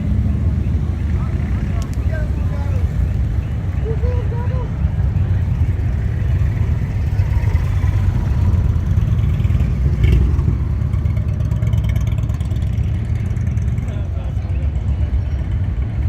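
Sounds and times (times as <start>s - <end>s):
motorcycle engines rumbling: 0.0s - 16.0s.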